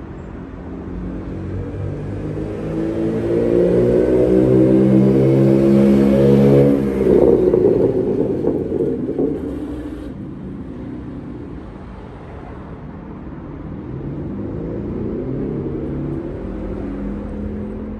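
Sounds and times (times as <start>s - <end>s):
car engine revving and idling: 1.4s - 10.5s
exhaust crackling: 2.5s - 10.8s.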